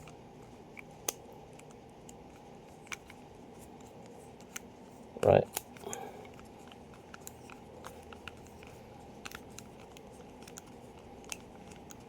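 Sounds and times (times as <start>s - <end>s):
clicks of plastic and metal pen parts: 5.5s - 12.0s.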